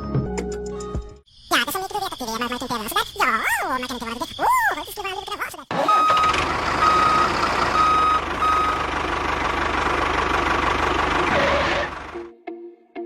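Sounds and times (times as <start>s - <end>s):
vehicle engine running: 5.7s - 12.3s
reversing beeper: 5.8s - 8.9s, 11.3s - 12.1s.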